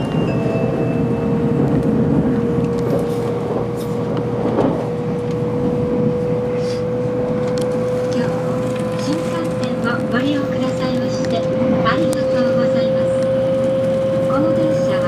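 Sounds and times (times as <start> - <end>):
on-board chime: 0.0 - 1.8
train rumble and whine: 0.0 - 15.0.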